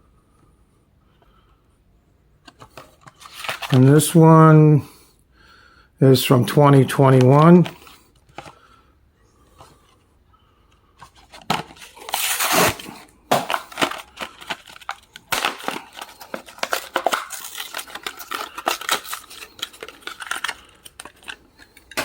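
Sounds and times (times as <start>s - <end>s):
plastic crinkling: 2.6s - 4.0s, 11.0s - 22.0s
card packaging tearing: 3.1s - 4.0s, 11.2s - 22.0s.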